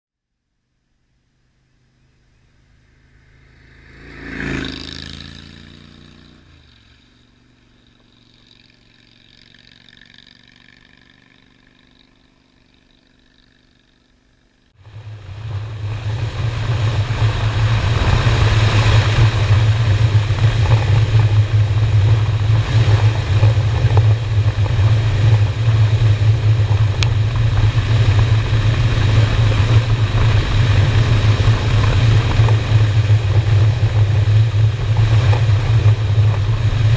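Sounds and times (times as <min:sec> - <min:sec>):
motorcycle engine droning: 0:00.6 - 0:36.9
vehicle passing by: 0:01.5 - 0:13.9, 0:14.8 - 0:36.9
wind noise on microphone: 0:14.9 - 0:36.9.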